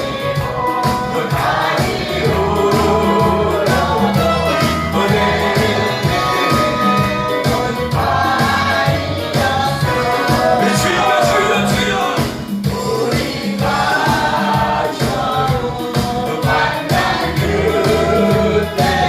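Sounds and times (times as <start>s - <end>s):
band playing steady beat: 0.0s - 19.0s
group singing gospel in unison: 0.0s - 19.0s.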